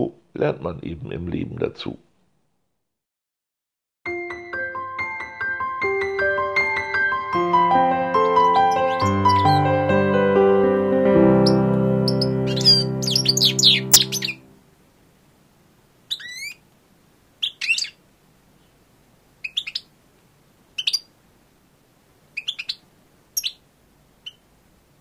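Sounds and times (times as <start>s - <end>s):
keyboard music: 4.1s - 14.6s
birds chirping: 8.2s - 10.1s, 11.2s - 14.5s, 16.1s - 16.6s, 17.4s - 18.0s, 19.4s - 19.9s, 20.8s - 21.1s, 22.4s - 24.5s.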